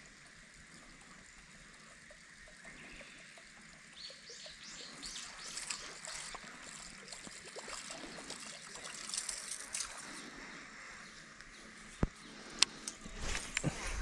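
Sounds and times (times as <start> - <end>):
small birds chirping: 1.9 - 13.6
water splashing lightly: 5.2 - 10.3.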